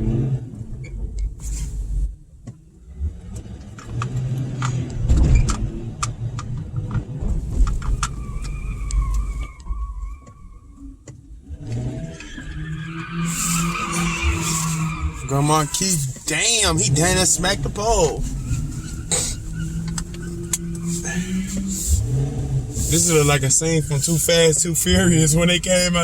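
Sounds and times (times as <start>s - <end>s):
car engine revving: 0.0s - 26.0s
wavering high squeal: 8.0s - 11.0s, 12.1s - 16.7s, 17.9s - 24.4s.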